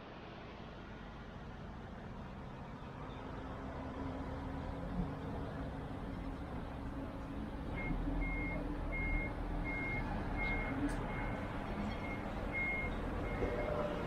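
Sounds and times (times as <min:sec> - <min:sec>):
reversing alarm beeping: 0:07.8 - 0:11.4, 0:12.0 - 0:14.0.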